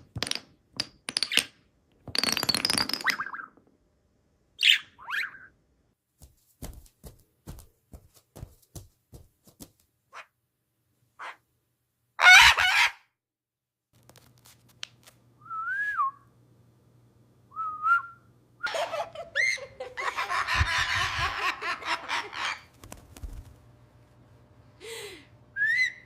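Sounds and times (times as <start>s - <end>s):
bird squawk: 11.2s - 11.4s, 12.2s - 13.0s
rising and falling bird whistles: 15.4s - 16.2s, 17.5s - 18.8s, 25.6s - 26.0s.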